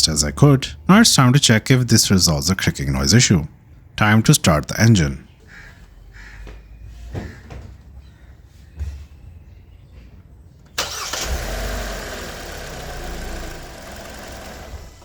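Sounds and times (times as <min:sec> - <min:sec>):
car engine starting: 0:10.7 - 0:15.0
car engine idling: 0:10.8 - 0:15.0.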